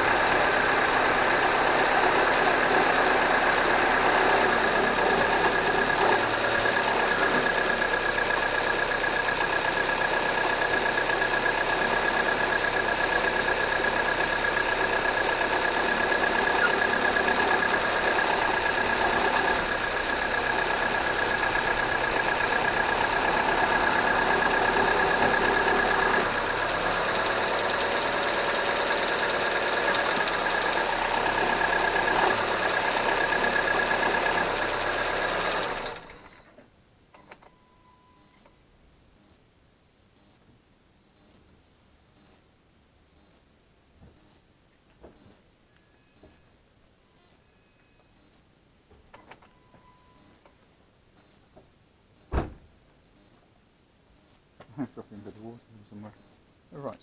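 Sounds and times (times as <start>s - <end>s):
car engine idling: 0.0s - 36.3s
engine ticking: 0.0s - 36.3s.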